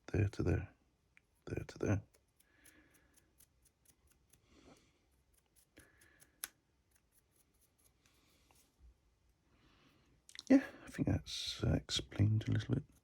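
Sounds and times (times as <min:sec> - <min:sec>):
dry brush scratching: 0:05.1 - 0:05.8, 0:06.9 - 0:08.8.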